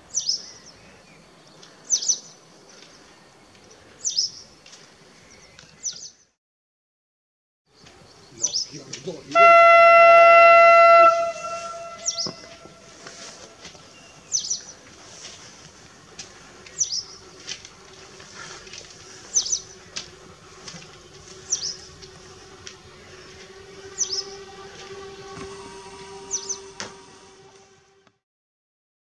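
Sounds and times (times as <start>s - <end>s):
diesel railbus faint hum: 7.8s - 28.2s
bird high falling chirp: 9.5s - 12.9s, 26.2s - 26.8s.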